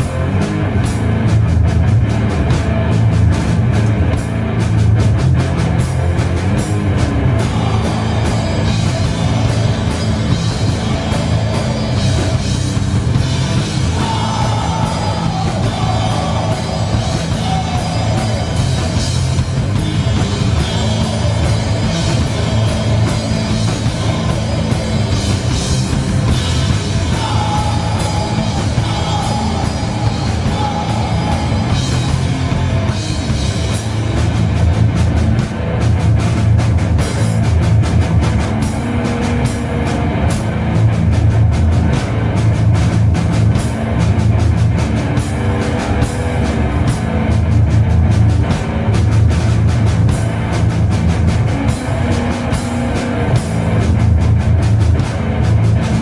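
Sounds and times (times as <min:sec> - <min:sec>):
heavy metal band playing live: 0:00.0 - 0:56.0.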